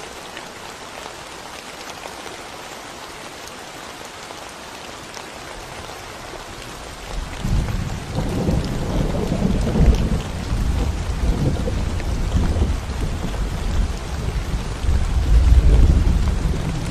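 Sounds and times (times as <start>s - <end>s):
rain on concrete: 0.0s - 16.9s
thunder rumbling: 7.4s - 16.9s.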